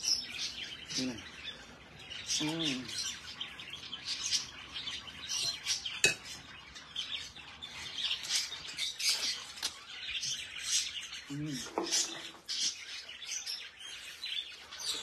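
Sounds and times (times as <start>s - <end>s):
caged birds chirping: 0.0s - 15.0s
spoon clinking against a bowl: 5.5s - 6.4s.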